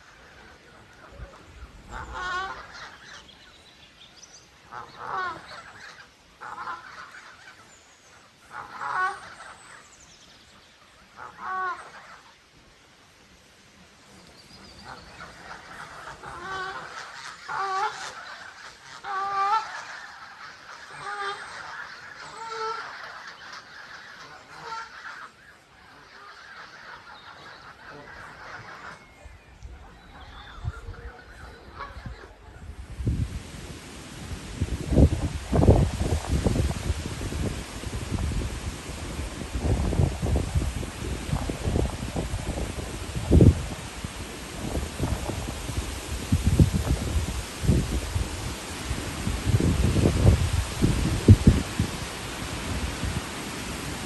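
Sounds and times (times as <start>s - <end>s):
goose honking: 0.0s - 3.2s, 4.7s - 7.6s, 8.5s - 9.8s, 11.1s - 12.2s, 14.8s - 29.1s, 30.2s - 32.7s
domestic fowl calling: 0.0s - 3.3s, 4.6s - 9.8s, 11.0s - 12.4s, 14.8s - 32.8s.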